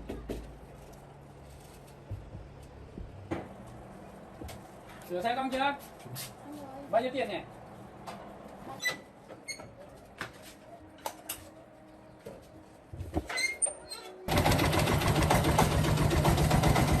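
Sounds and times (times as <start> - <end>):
loud machine running: 14.3 - 17.0.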